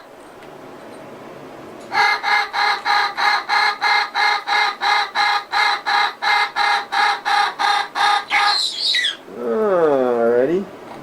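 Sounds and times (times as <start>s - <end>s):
parrot calling rapidly: 1.9s - 9.3s.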